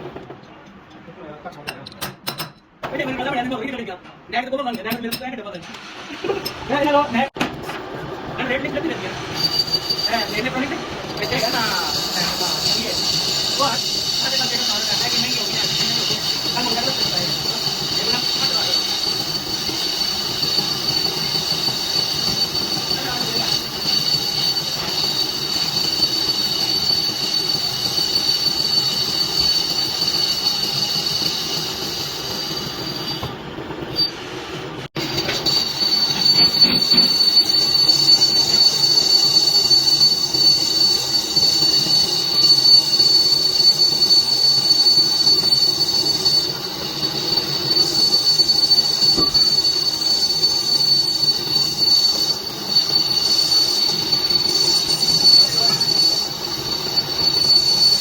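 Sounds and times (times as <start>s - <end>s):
lathe machine noise: 7.9s - 33.3s, 34.8s - 58.0s
high-pitched cutting squeal: 8.4s - 58.0s.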